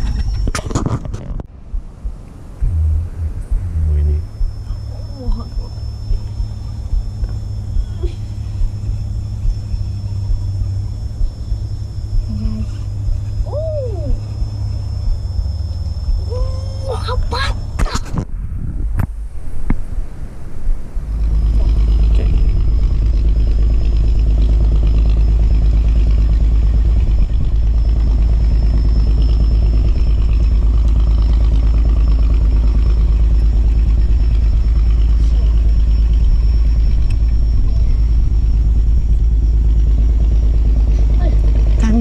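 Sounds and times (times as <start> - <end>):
wind buffeting microphone: 0.0 - 42.0
small engine running: 1.7 - 18.1, 21.0 - 42.0.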